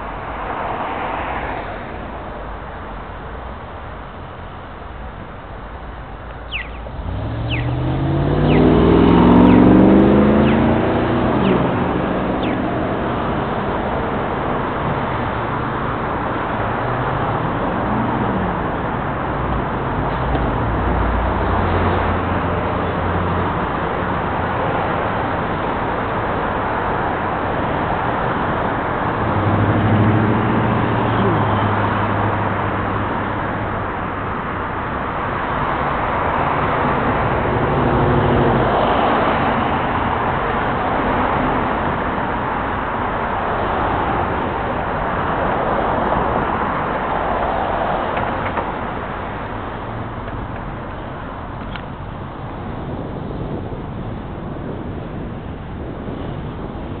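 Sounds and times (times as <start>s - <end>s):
traffic noise: 0.0s - 57.0s
car engine accelerating past: 6.9s - 14.7s, 29.0s - 33.4s.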